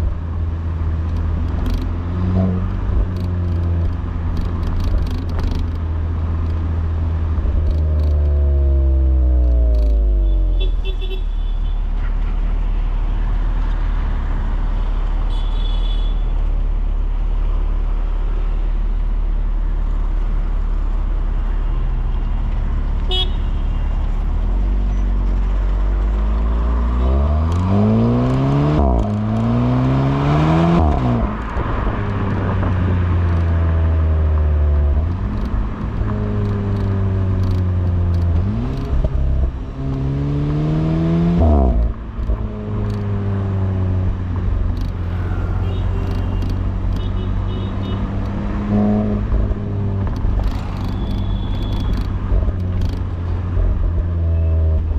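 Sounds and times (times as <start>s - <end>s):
car engine exhaust accelerating: 48.1s - 54.9s.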